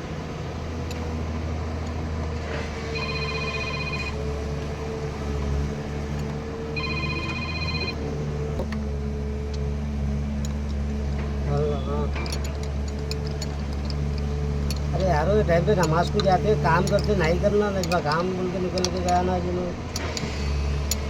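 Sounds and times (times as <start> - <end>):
mobile phone ringtone: 2.9 - 4.2, 6.8 - 8.1.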